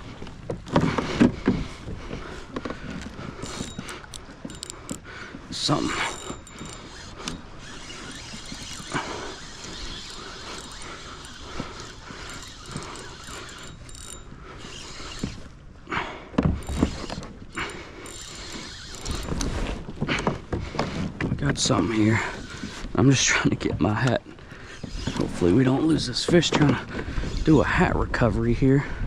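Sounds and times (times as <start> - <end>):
fishing reel whirring and ticking: 2.6 - 15.7, 16.5 - 19.9, 21.6 - 23.0.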